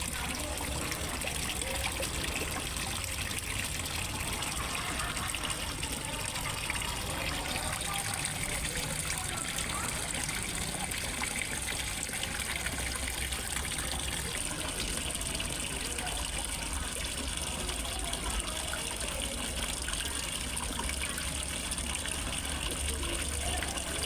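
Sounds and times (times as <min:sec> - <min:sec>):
water trickling into a pond: 0:00.0 - 0:24.0.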